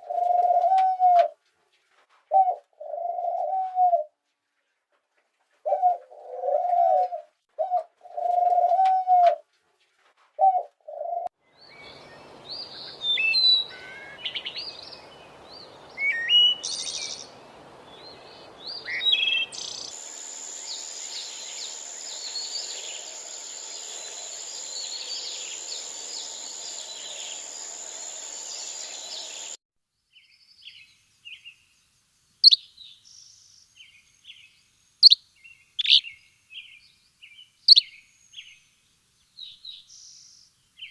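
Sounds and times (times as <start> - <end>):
dove cooing: 0.0 - 1.4, 2.3 - 4.1, 5.6 - 9.4, 10.4 - 11.3
songbirds chirping: 10.9 - 40.9
chorus of high bird calls: 11.6 - 17.4, 18.0 - 29.6
steady hiss: 14.0 - 29.6.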